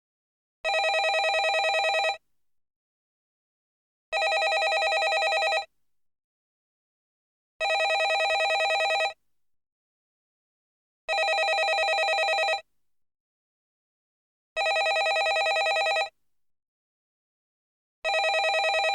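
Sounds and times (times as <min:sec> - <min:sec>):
telephone ringing: 0:00.7 - 0:02.2, 0:04.2 - 0:05.7, 0:07.6 - 0:09.2, 0:11.1 - 0:12.6, 0:14.6 - 0:16.1, 0:18.1 - 0:18.9.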